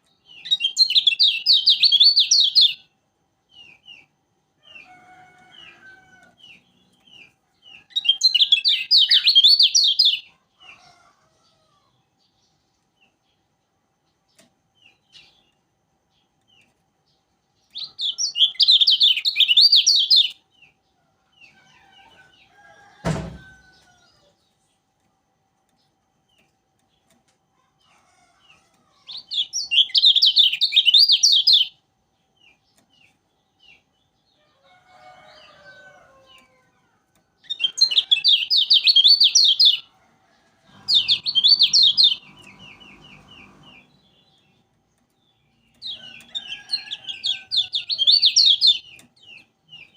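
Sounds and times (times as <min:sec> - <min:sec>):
bird twittering song: 0:00.0 - 0:10.4, 0:12.2 - 0:23.0, 0:28.4 - 0:39.9, 0:40.7 - 0:49.9
sharp knock: 0:23.0 - 0:23.4.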